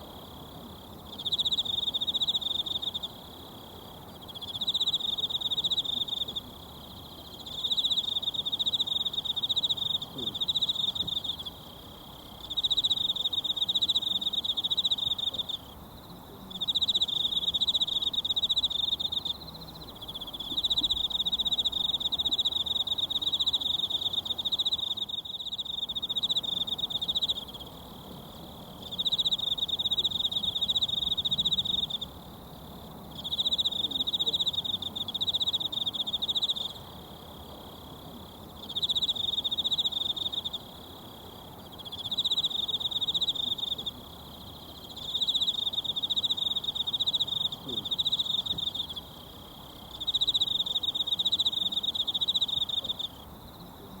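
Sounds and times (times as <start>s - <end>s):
insect trilling: 16.5s - 27.8s, 33.1s - 37.0s, 38.6s - 54.0s.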